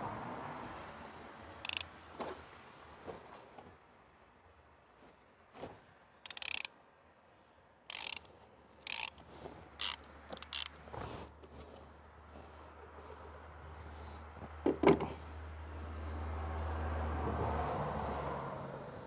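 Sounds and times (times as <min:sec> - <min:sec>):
socket ratchet clicking: 0:01.6 - 0:01.9, 0:06.3 - 0:06.7, 0:07.9 - 0:08.3, 0:08.9 - 0:09.2, 0:09.8 - 0:10.7.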